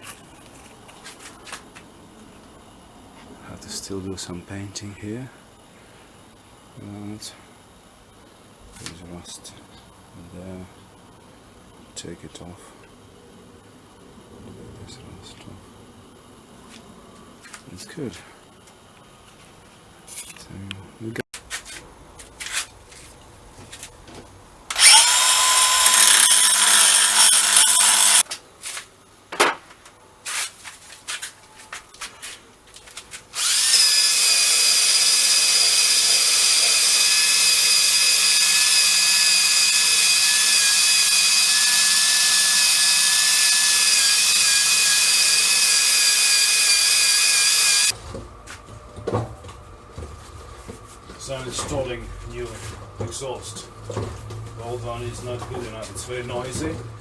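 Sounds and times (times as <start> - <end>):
power drill scraping metal: 24.7 - 28.2, 33.4 - 47.9.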